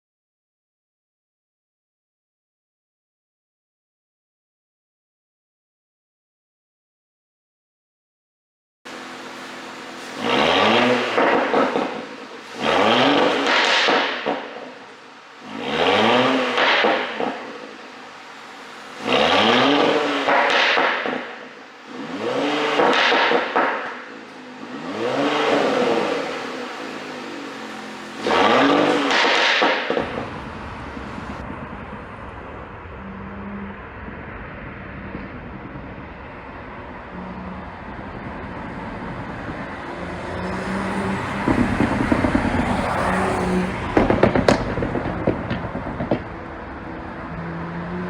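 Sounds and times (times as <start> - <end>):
car engine revving: 8.9 - 48.0
exhaust pops and crackles: 10.2 - 14.9, 15.6 - 17.7, 19.0 - 21.5, 22.2 - 24.2, 28.2 - 33.7, 34.8 - 37.0, 40.5 - 47.4.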